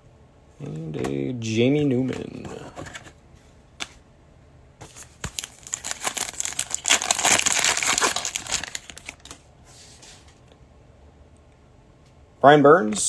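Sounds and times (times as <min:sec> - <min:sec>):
foil wrapper crinkling: 0:04.8 - 0:09.4.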